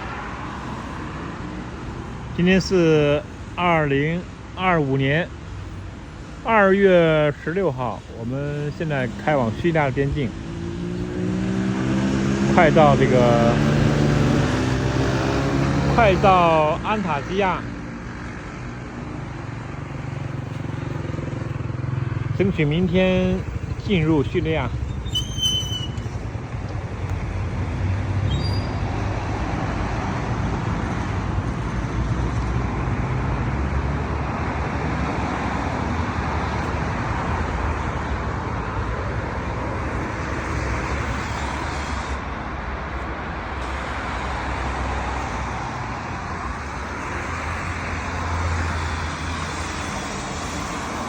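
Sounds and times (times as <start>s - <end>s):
tyre and wind road noise: 0.0s - 51.0s.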